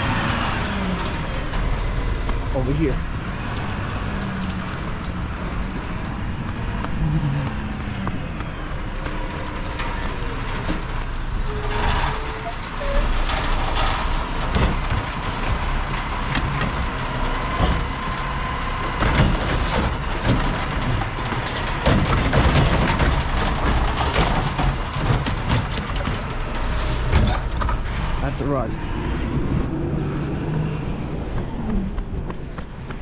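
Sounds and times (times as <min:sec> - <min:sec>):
brake squeal: 0:00.0 - 0:16.2, 0:16.9 - 0:33.0
truck engine rumbling: 0:00.0 - 0:33.0.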